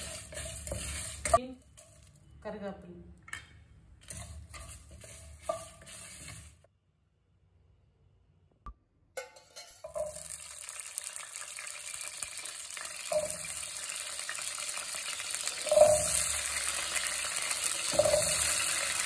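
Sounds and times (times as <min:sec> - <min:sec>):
shallots sizzling in hot oil: 0:00.0 - 0:02.6, 0:04.0 - 0:06.7, 0:09.6 - 0:19.0
shallots splashing into oil: 0:09.7 - 0:19.0.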